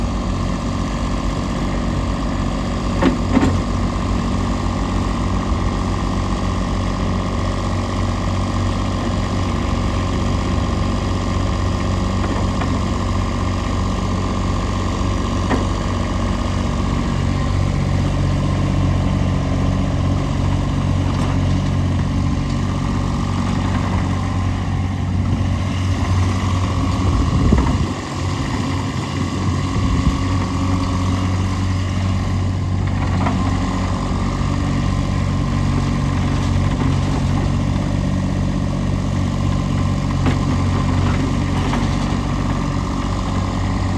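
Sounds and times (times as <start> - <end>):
loader engine running: 0.0 - 43.9
clunk: 3.0 - 3.7.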